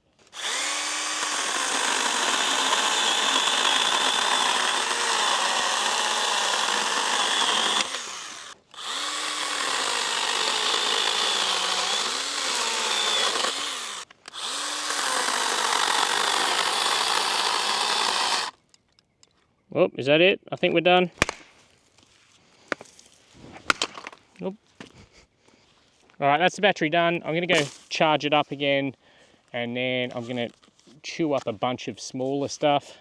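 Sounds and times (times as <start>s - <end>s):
electric chainsaw cutting branch: 0.3s - 18.5s.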